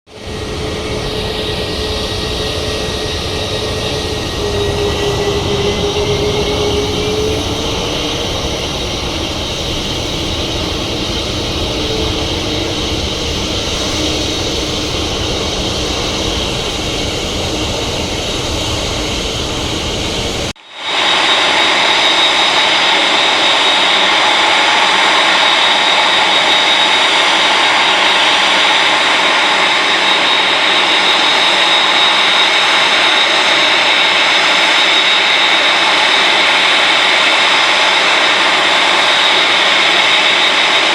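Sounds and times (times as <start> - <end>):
high jet whine: 0.1 - 40.9
jet engines running: 0.1 - 40.9.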